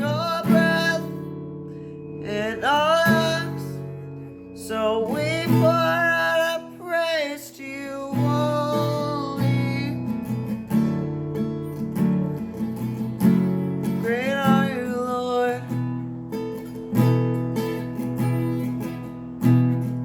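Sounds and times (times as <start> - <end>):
person singing: 0.0 - 1.3, 2.2 - 4.0, 4.6 - 10.3
strummed acoustic guitar: 0.0 - 20.0.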